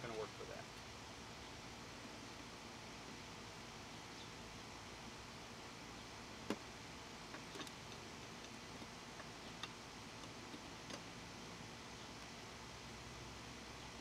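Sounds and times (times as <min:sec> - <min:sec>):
faint hiss: 0:00.0 - 0:14.0.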